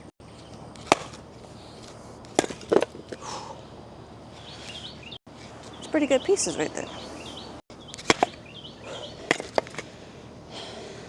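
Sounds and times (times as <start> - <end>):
firewood knocking and clattering: 2.3 - 3.2.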